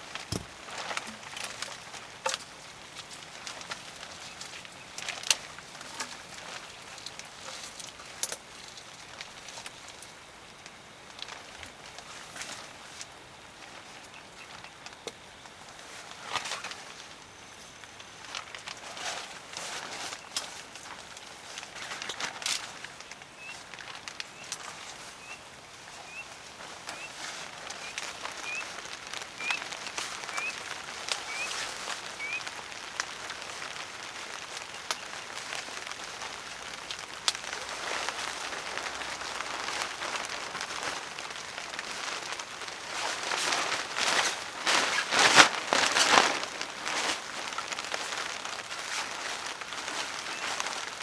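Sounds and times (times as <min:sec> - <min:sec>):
rain pattering: 0:00.0 - 0:51.0
rustling bursts: 0:25.7 - 0:51.0.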